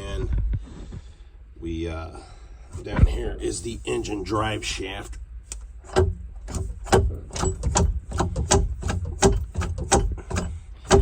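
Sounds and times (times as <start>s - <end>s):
metallic clicks and knocks: 5.5s - 11.0s.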